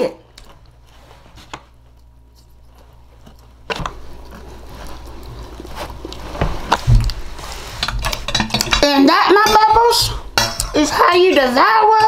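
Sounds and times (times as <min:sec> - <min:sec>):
person chewing and biting: 0:01.8 - 0:08.3.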